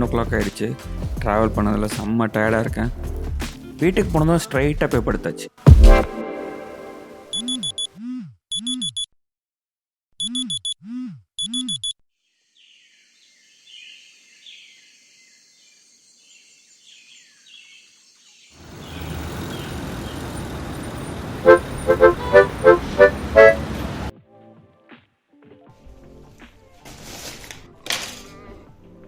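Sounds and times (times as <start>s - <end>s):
electronic alarm beeps: 7.3s - 7.9s, 8.5s - 9.1s, 10.2s - 10.8s, 11.4s - 12.0s
birds chirping: 12.6s - 24.1s
loud steady street noise: 18.6s - 24.1s.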